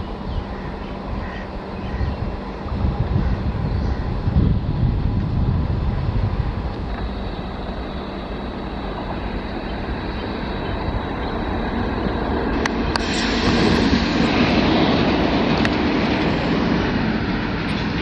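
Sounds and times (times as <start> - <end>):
train rumbling on track: 0.0 - 18.0
thin high whine: 6.4 - 16.5.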